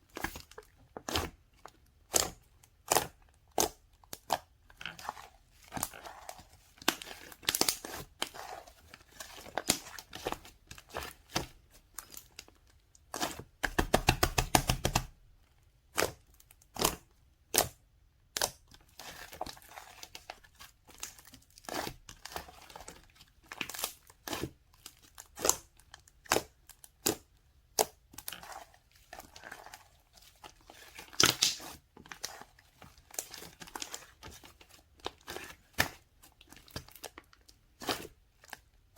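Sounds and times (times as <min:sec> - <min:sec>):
crinkling and rustling: 0:28.0 - 0:38.9.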